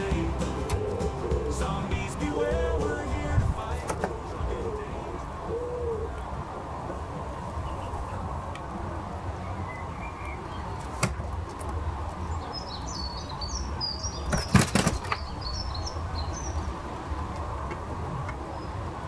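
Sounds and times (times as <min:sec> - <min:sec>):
small birds chirping: 0:12.1 - 0:16.9.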